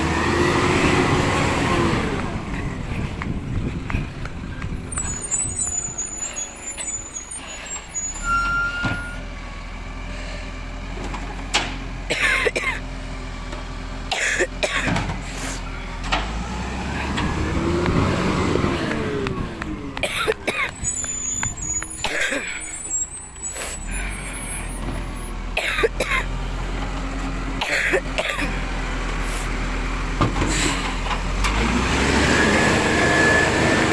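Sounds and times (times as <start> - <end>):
diesel truck engine running: 0.0 - 33.9
air brake hisses: 5.0 - 9.2, 20.8 - 24.7, 30.4 - 31.0
short beep tone: 8.0 - 9.2.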